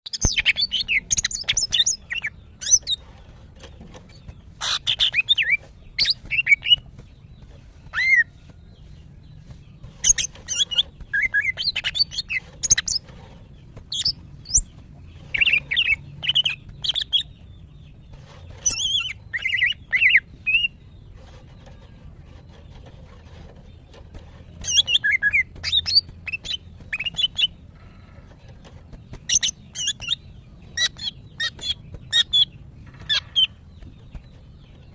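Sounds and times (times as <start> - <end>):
bird chirping and whistling: 0.1 - 3.0, 4.6 - 6.8, 7.9 - 8.3, 10.0 - 13.0, 18.6 - 20.8, 24.6 - 27.5, 29.3 - 30.2.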